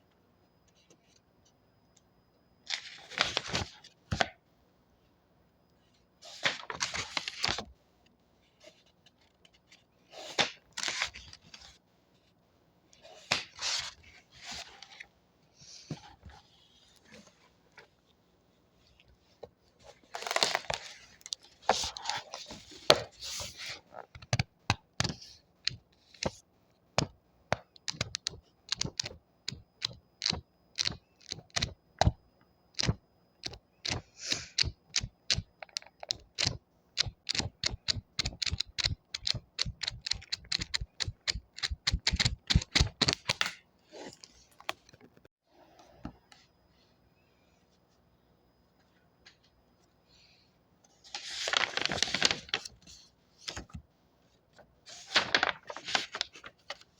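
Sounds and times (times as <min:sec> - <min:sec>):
paper rustling: 0:02.7 - 0:04.3, 0:06.2 - 0:07.7, 0:13.0 - 0:15.0, 0:19.8 - 0:24.0, 0:51.0 - 0:53.8, 0:54.9 - 0:56.9
book pages flicking: 0:32.8 - 0:43.6, 0:51.2 - 0:52.8, 0:54.9 - 0:56.8.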